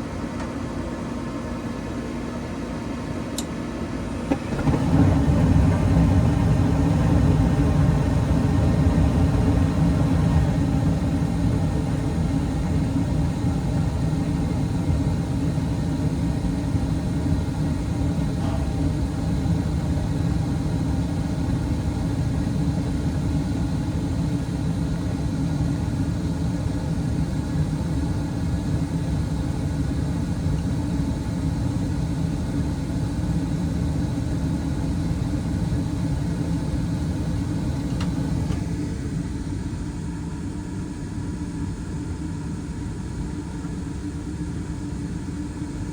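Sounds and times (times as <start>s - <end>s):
furnace inducer motor whirring: 0.0s - 40.6s
low rumble of gas burners: 0.0s - 45.9s.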